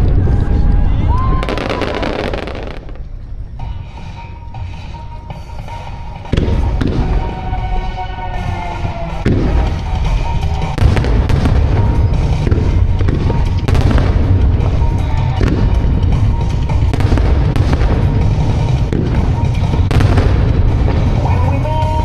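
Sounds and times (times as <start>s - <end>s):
fireworks bursting with booms: 1.4s - 3.0s, 6.3s - 7.8s, 9.2s - 22.0s.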